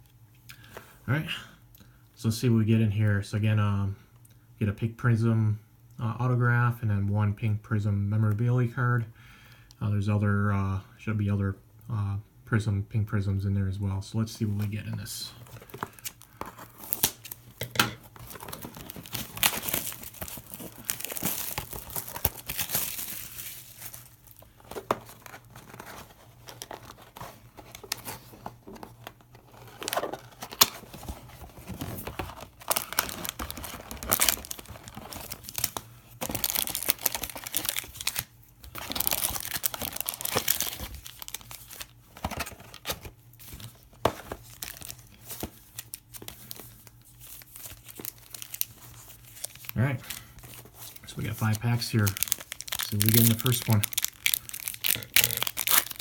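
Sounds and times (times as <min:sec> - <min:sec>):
packaging tearing and crinkling: 0:15.5 - 0:56.0.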